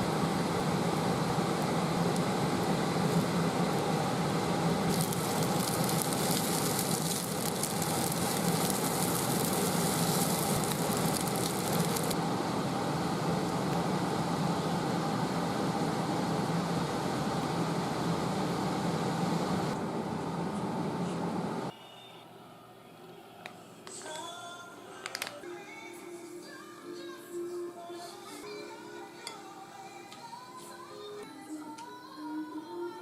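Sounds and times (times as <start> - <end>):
kitchen extractor fan hum: 0.0 - 21.8
food sizzling in a frying pan: 4.9 - 12.2.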